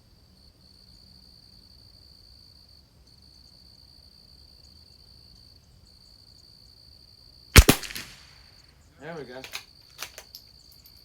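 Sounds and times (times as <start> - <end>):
high-pitched insect trill: 8.6 - 11.0.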